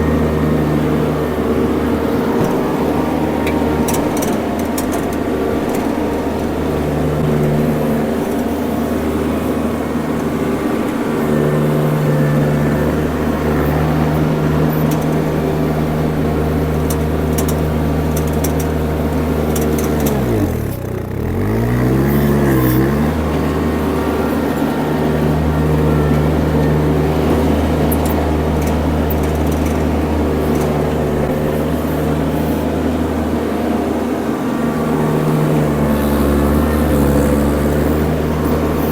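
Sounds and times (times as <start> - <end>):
skid steer engine running: 0.0 - 38.9.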